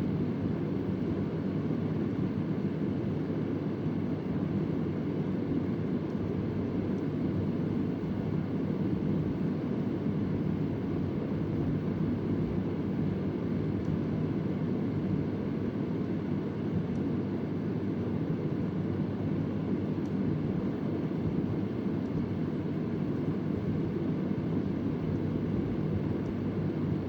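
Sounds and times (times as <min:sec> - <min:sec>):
faint motor hum: 0:00.0 - 0:27.0
fan rush of air: 0:00.0 - 0:27.0.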